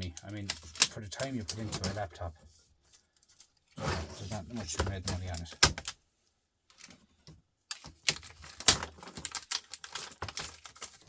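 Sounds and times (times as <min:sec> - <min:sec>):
plastic laptop parts clicking: 0:05.2 - 0:06.0, 0:06.7 - 0:11.0.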